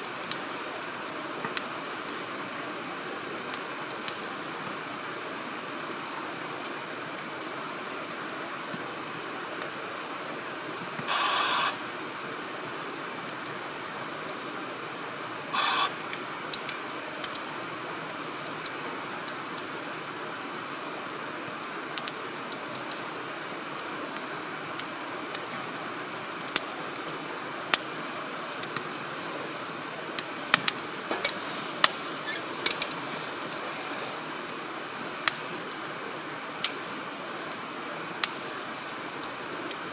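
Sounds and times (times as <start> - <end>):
firewood crackling and popping: 0.0 - 39.9
hiss of fire flames: 6.6 - 20.1, 21.9 - 39.9.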